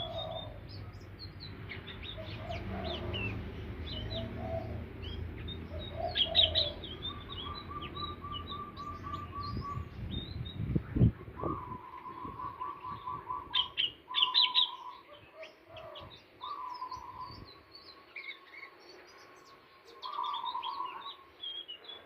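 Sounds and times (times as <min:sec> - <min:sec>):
bird song chirps and whistles: 0:05.0 - 0:22.0.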